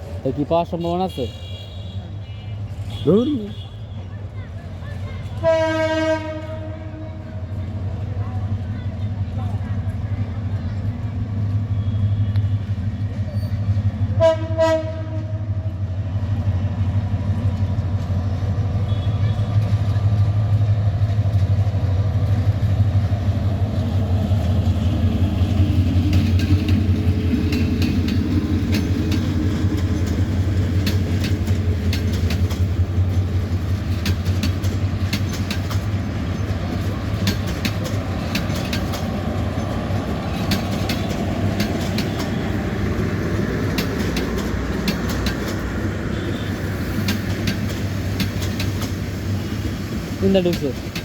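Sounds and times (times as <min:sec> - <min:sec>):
train rumbling on rails: 0:00.0 - 0:51.0
wheels clicking over rail joints: 0:17.3 - 0:51.0.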